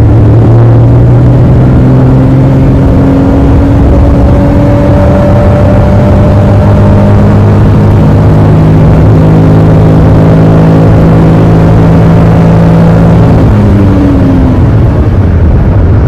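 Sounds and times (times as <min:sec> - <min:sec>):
small car engine running: 0:00.0 - 0:16.0.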